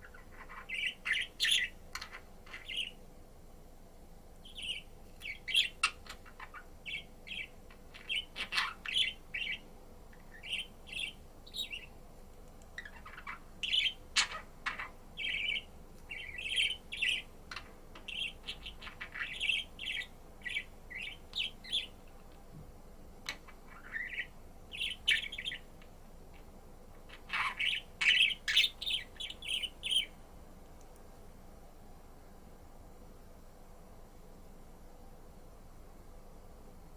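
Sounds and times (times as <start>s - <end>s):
budgerigar chirping: 0.0s - 3.0s, 4.4s - 9.6s, 10.3s - 11.9s, 12.8s - 22.0s, 23.7s - 25.7s, 27.1s - 30.1s.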